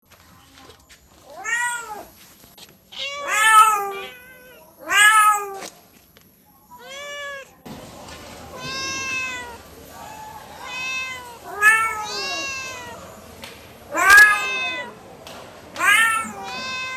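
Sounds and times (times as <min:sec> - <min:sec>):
cat meowing: 0:01.3 - 0:02.1, 0:02.9 - 0:05.7, 0:06.7 - 0:07.6, 0:08.4 - 0:13.2, 0:13.9 - 0:15.0, 0:15.8 - 0:16.9.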